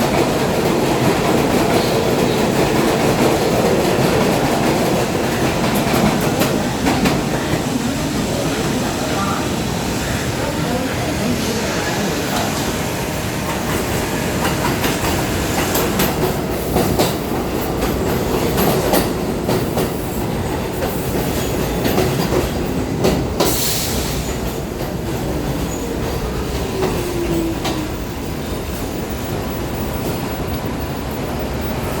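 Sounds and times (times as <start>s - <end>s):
subway train rumbling: 0.0s - 32.0s.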